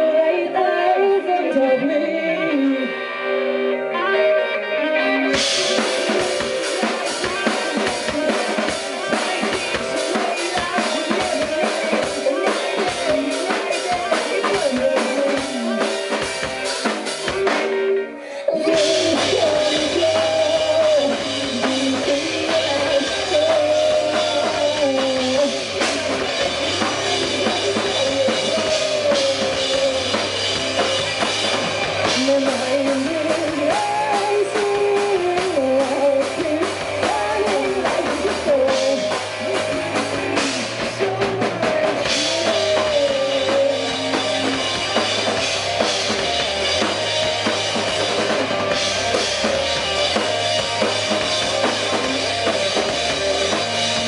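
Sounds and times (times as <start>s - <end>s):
rock band playing: 0.0s - 54.0s
bass drum and snare: 18.7s - 54.0s.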